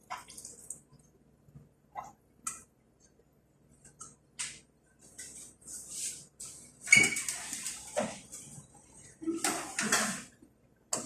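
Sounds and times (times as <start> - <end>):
cookware clicks and scrapes: 9.2 - 11.0.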